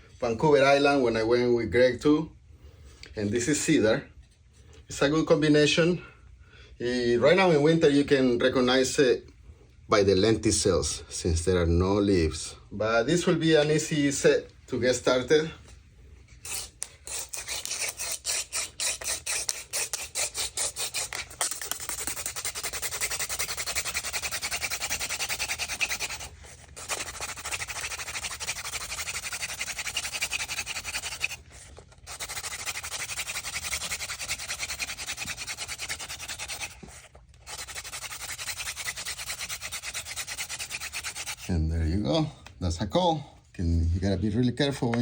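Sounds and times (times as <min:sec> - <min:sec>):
wooden spindle rasping in notch: 0:16.5 - 0:41.5.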